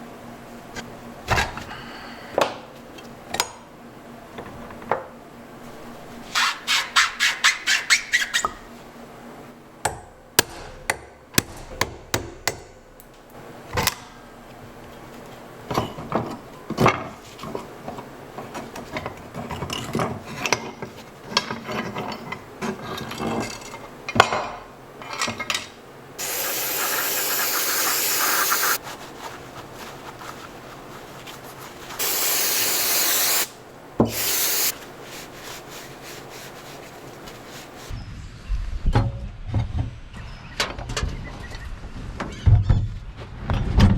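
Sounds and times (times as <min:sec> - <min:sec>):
rushing air bursts: 0:26.2 - 0:28.8, 0:32.0 - 0:34.8.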